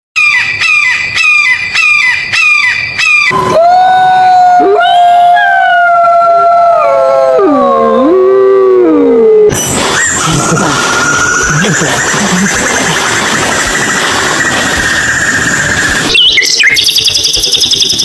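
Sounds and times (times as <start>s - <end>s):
high yelping calls: 0.2s - 3.5s, 9.5s - 18.0s
animals howling: 1.4s - 16.6s.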